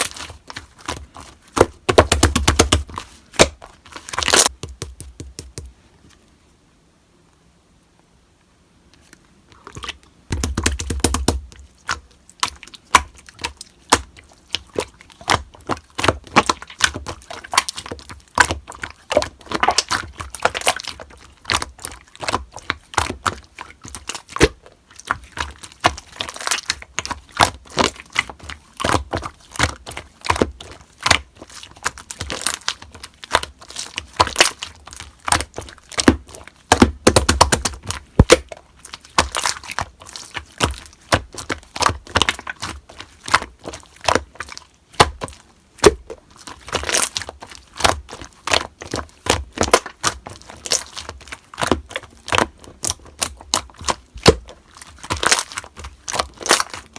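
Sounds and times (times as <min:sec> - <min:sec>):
slime squished by hand: 0:00.0 - 0:05.7, 0:09.6 - 0:56.9
sticky pops and clicks: 0:04.3 - 0:05.7, 0:10.3 - 0:11.4, 0:36.7 - 0:38.4.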